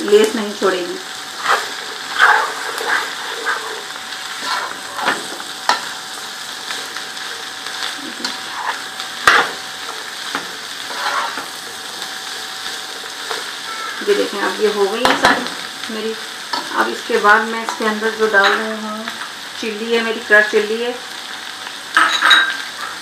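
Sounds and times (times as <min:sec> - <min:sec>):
vegetables sizzling in oil: 0:00.0 - 0:23.0
spoon scraping and knocking a pot: 0:10.3 - 0:11.5.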